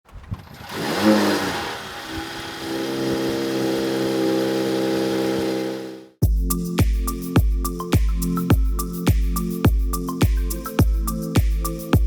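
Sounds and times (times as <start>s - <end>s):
car engine idling: 0.1s - 6.1s
music with steady beat: 6.2s - 12.0s.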